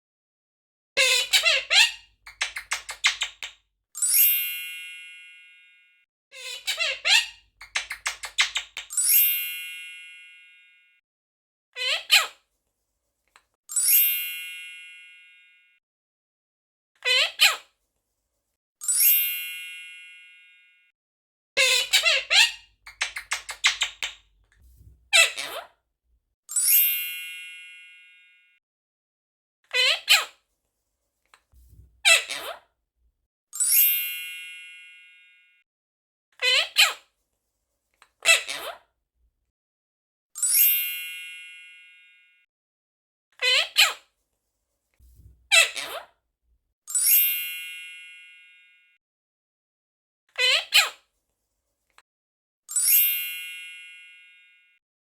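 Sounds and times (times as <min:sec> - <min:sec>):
parrot clicky chatter: 0:01.0 - 0:03.6, 0:06.6 - 0:09.0, 0:21.6 - 0:24.3
parrot squeaky calls: 0:01.0 - 0:04.4, 0:06.4 - 0:09.3, 0:11.8 - 0:12.4, 0:21.6 - 0:24.3, 0:25.1 - 0:25.7, 0:29.7 - 0:30.4, 0:32.0 - 0:32.6, 0:36.4 - 0:37.0, 0:38.2 - 0:38.8, 0:43.4 - 0:44.0, 0:45.5 - 0:46.1, 0:50.4 - 0:51.0
squeaky gliding chirp: 0:01.5 - 0:04.3, 0:21.8 - 0:24.3.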